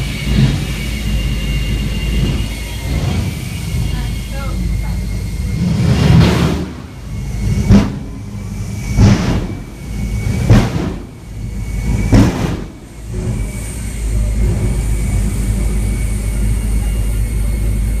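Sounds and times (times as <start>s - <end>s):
jet engine blasts: 0.0s - 18.0s
steady low rumble: 0.0s - 18.0s
sharp bang: 7.6s - 8.2s, 8.8s - 12.9s.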